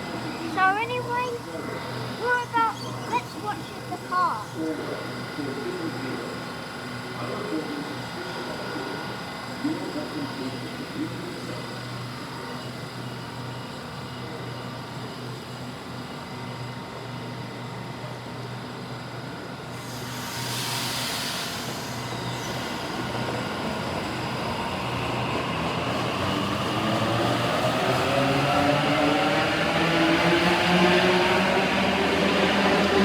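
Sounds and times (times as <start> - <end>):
electric train motors whining: 18.6 - 33.0.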